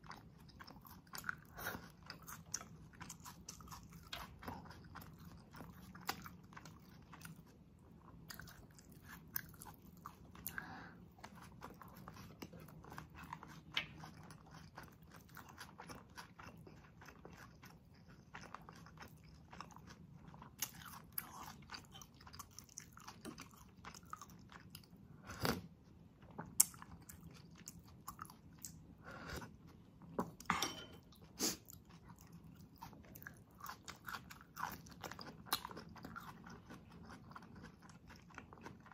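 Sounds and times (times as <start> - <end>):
chewing with wet mouth clicks: 0.0 - 25.6, 26.2 - 28.8, 31.1 - 38.9
food crunching: 31.2 - 38.9.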